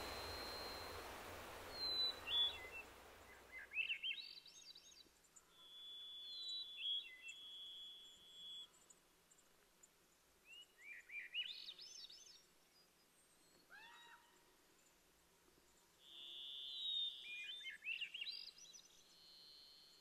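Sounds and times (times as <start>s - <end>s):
high bird whistle: 0.0s - 4.2s
lower bird calls: 0.0s - 4.4s
songbird chirps: 0.0s - 20.0s.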